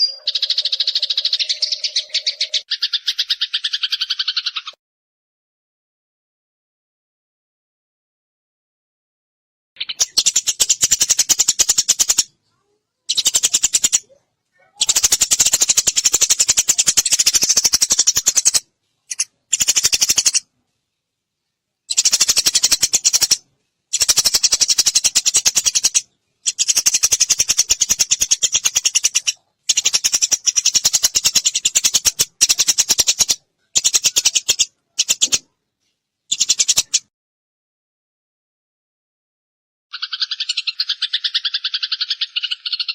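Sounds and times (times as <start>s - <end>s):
sparrows chirping rapidly: 0.0s - 4.8s, 9.8s - 20.5s, 21.9s - 35.5s, 36.3s - 37.1s, 39.9s - 42.9s.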